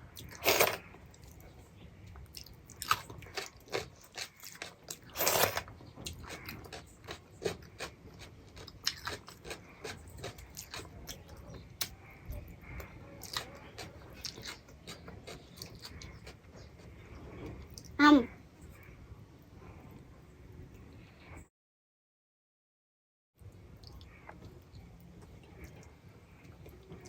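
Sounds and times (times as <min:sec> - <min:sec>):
wet chewing and mouth smacks: 0:02.1 - 0:12.0.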